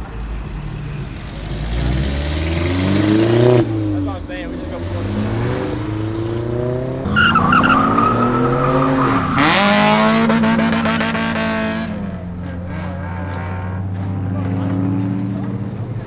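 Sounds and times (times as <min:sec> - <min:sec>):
car engine revving hard: 0:00.0 - 0:16.0
tyres squealing: 0:07.0 - 0:14.4.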